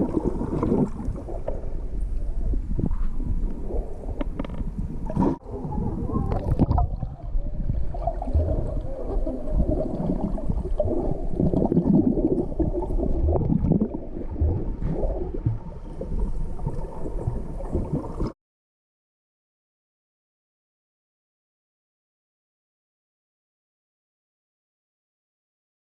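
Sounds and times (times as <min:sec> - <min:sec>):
underwater gurgling and rumbling: 0:00.0 - 0:18.4.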